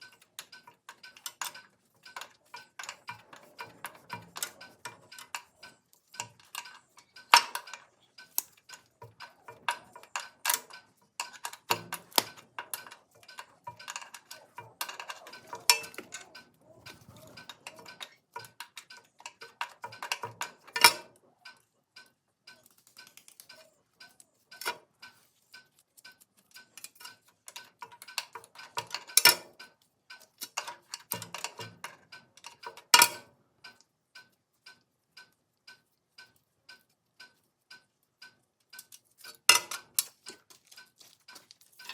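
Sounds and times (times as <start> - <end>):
metal tools clinking: 0.0 - 21.1
faint steady ticking: 0.0 - 41.9.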